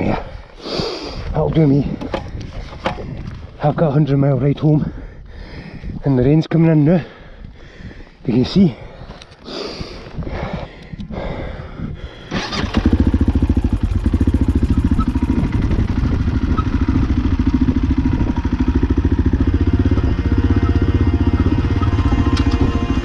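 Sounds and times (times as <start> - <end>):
motorcycle engine idling: 12.1 - 23.0.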